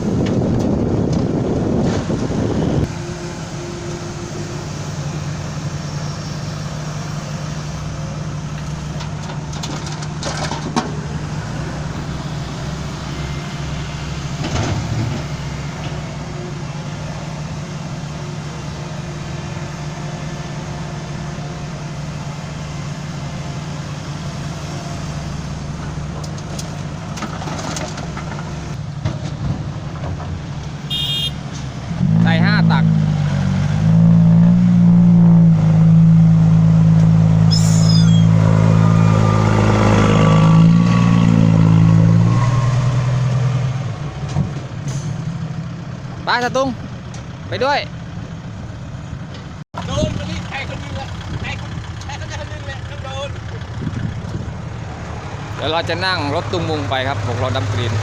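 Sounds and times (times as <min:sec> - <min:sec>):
heavy diesel engine idling: 0:44.7 - 0:58.0.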